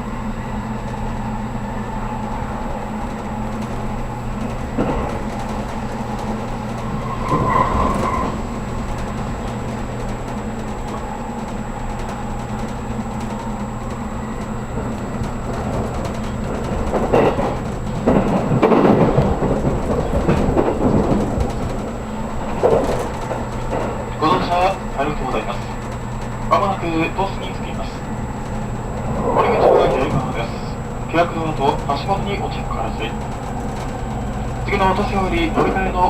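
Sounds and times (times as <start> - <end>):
train hum in motion: 0.0 - 36.0
rough rumbling and clattering: 14.4 - 36.0.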